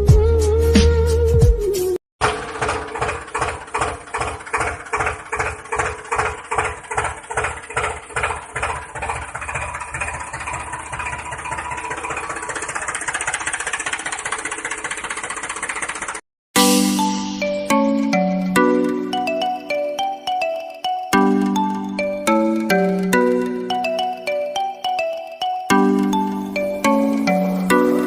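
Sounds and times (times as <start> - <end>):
small engine thumping: 2.2 - 16.2.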